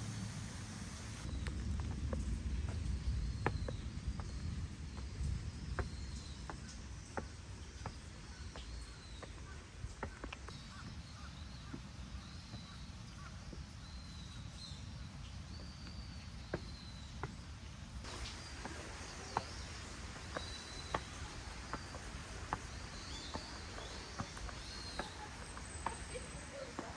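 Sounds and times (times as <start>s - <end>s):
bird calling: 8.4s - 26.9s.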